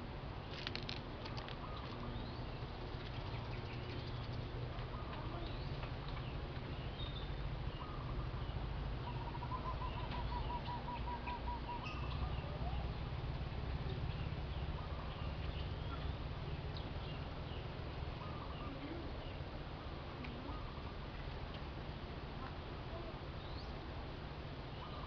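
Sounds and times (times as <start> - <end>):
steady low rumble: 0.0 - 25.0
birds chirping: 0.4 - 21.8, 22.4 - 23.8, 24.5 - 25.0.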